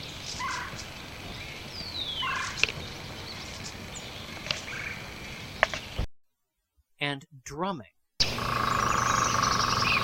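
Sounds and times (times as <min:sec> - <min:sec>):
woodpecker calls: 0:00.0 - 0:06.0, 0:08.2 - 0:10.0.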